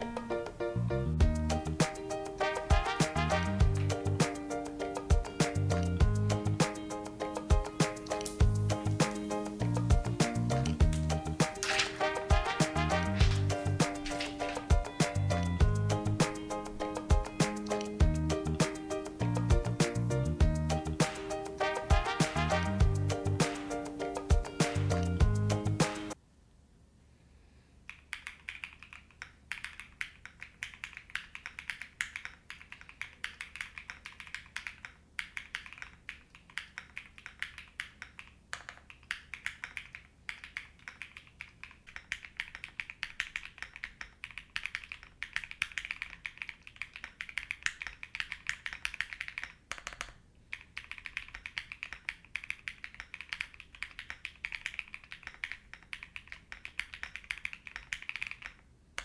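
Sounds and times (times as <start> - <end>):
keyboard typing clacks: 1.8 - 20.1, 20.8 - 25.2, 28.1 - 58.6.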